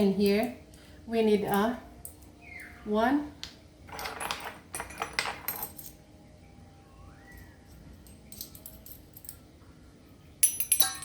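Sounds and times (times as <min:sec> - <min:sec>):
clatter of kitchen items: 0:03.9 - 0:05.8
faint rising squeak: 0:06.2 - 0:08.0.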